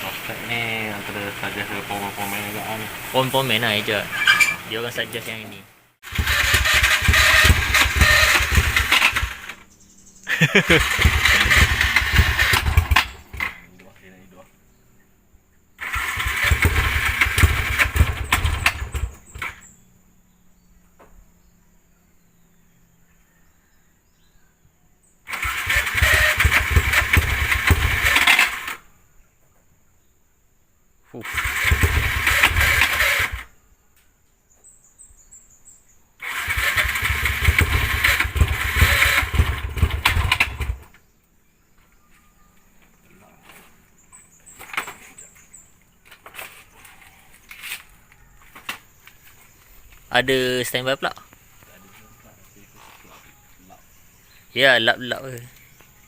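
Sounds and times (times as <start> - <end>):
motorcycle engine revving: 0.0 - 5.1, 6.0 - 14.0, 15.8 - 19.8, 25.3 - 28.9, 31.2 - 33.5, 36.2 - 41.0.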